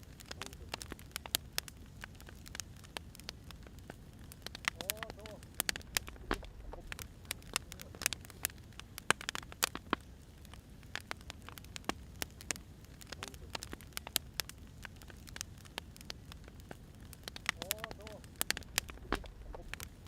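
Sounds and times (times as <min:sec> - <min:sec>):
firewood crackling and popping: 0:00.0 - 0:20.0
low steady rumble: 0:03.4 - 0:09.1, 0:15.8 - 0:20.0.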